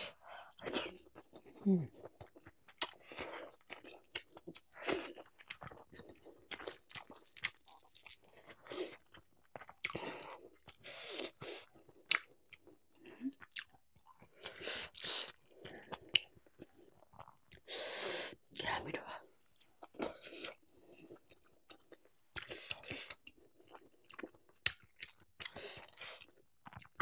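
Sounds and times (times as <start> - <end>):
person chewing with wet smacks: 0.2 - 17.7, 19.4 - 27.0.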